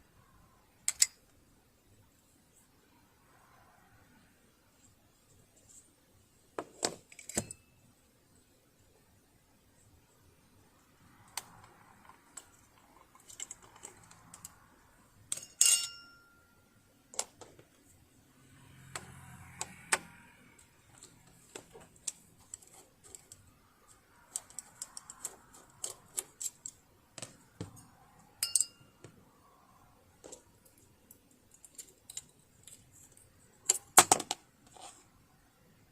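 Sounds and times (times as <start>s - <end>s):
tools and metal parts clicking: 0.8s - 1.3s, 6.9s - 7.7s, 11.3s - 14.7s, 15.3s - 16.4s, 18.9s - 29.1s, 30.2s - 34.4s
sharp metallic clink: 15.3s - 16.6s, 27.8s - 29.0s.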